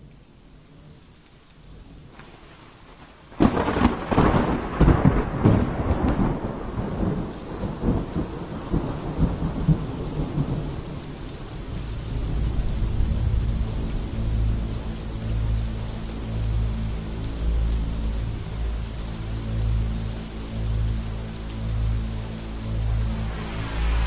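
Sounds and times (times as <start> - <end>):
heavy rain rushing: 0.0 - 24.0
thunder crackling and rumbling: 2.0 - 15.7, 22.7 - 24.0.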